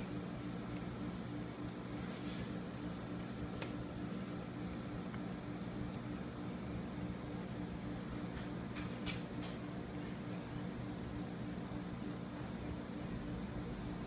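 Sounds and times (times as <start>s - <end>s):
steady low hum: 0.0s - 14.0s
scratchy rubs on phone screen: 10.7s - 14.0s.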